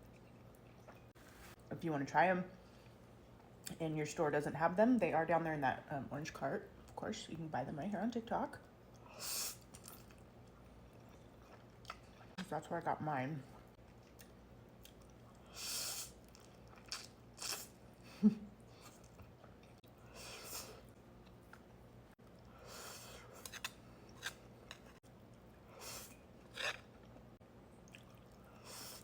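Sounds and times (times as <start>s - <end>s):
chewing noodles: 8.9s - 12.4s, 13.7s - 17.8s, 22.3s - 28.7s.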